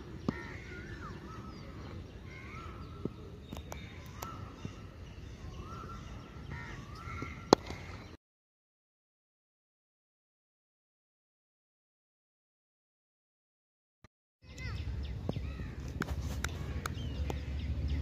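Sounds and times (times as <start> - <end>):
birds calling: 0.0 - 8.2, 14.4 - 18.0.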